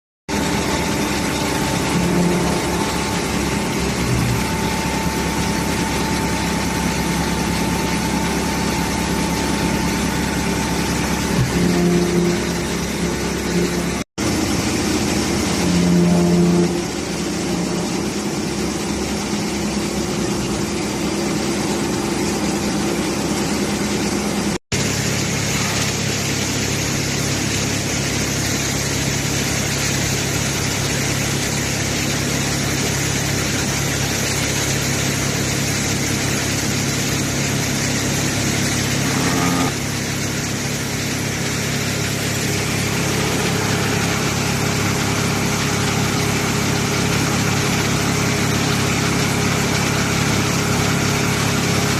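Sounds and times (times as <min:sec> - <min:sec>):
machine hum: 0:00.3 - 0:51.9.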